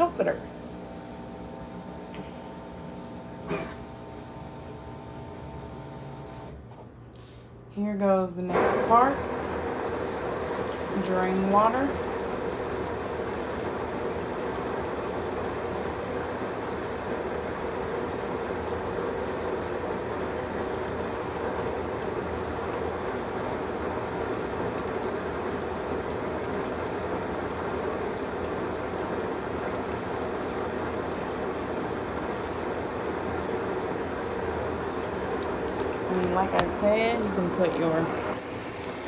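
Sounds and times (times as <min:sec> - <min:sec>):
drain pump running: 0:00.0 - 0:07.4, 0:08.4 - 0:39.0.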